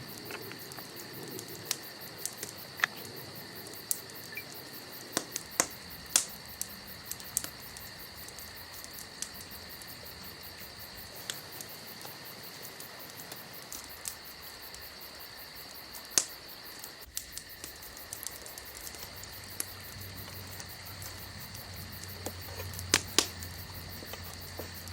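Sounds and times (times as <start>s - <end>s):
insects trilling: 0.0s - 24.9s
sharp pops or clicks: 22.2s - 24.2s.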